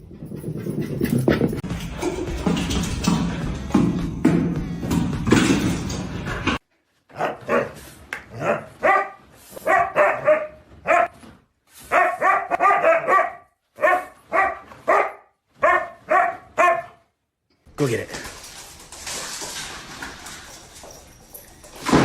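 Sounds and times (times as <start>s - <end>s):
background music: 1.6s - 6.6s
dog barking: 7.1s - 7.8s, 8.4s - 11.2s, 11.9s - 17.0s.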